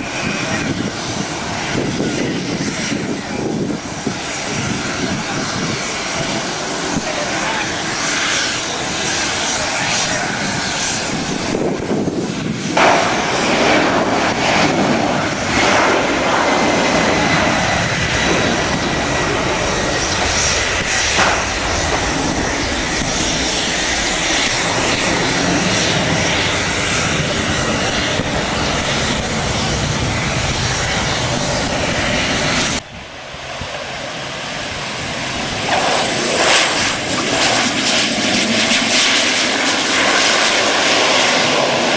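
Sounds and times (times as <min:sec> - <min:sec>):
airliner engines running: 0:00.0 - 0:41.9.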